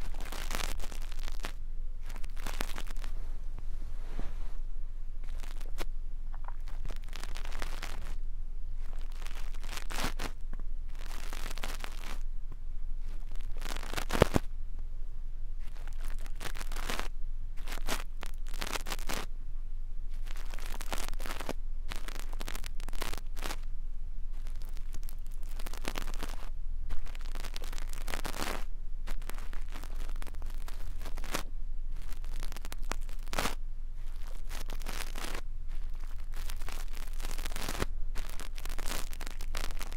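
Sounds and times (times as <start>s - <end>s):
brush scratchy strokes: 0.0s - 8.2s, 8.8s - 12.3s.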